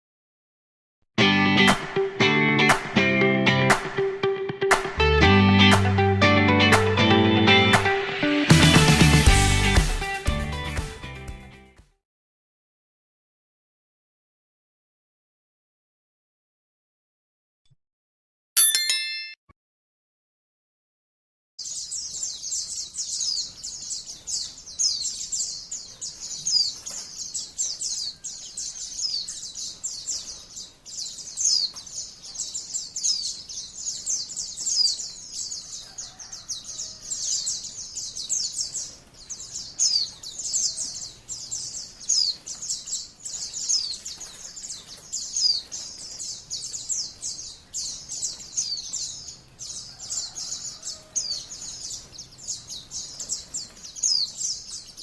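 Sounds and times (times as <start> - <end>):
bird twittering song: 21.6 - 55.0.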